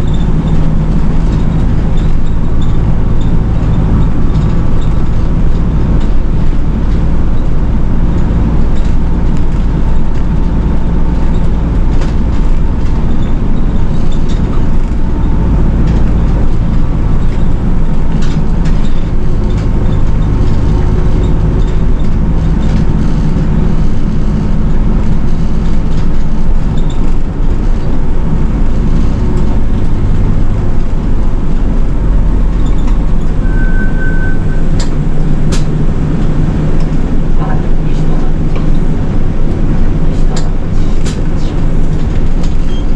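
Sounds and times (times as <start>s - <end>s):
bus engine and road noise: 0.0s - 42.9s
short steady beep: 33.4s - 34.6s.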